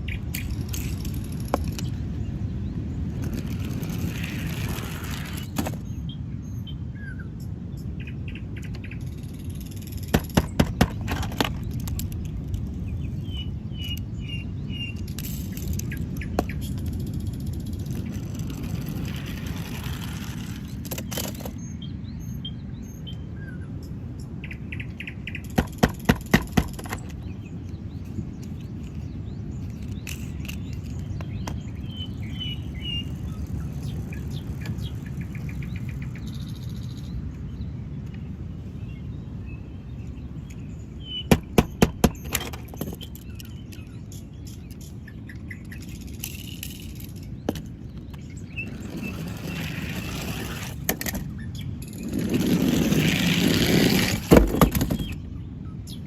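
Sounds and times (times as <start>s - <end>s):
bird chirps: 12.8s - 16.9s, 21.1s - 25.8s, 26.8s - 46.6s.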